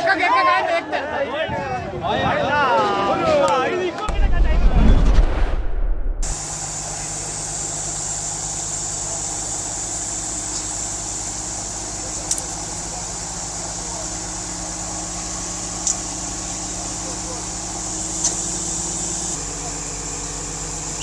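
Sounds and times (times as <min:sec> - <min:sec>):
heavy vehicle engine running: 0:04.1 - 0:21.0.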